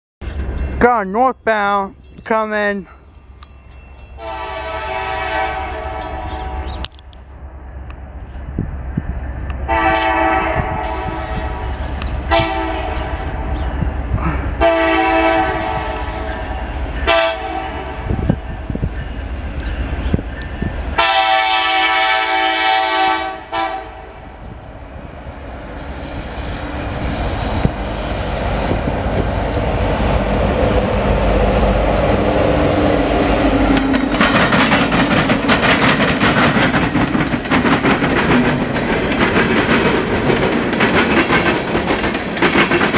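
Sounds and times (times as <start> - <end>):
freight train rumble: 0.2 - 42.9
locomotive air horn blasts: 4.2 - 6.7, 9.7 - 11.7, 12.3 - 13.0, 14.6 - 16.4, 17.0 - 18.1, 21.0 - 24.2
train wheels clattering on rails: 33.3 - 42.9.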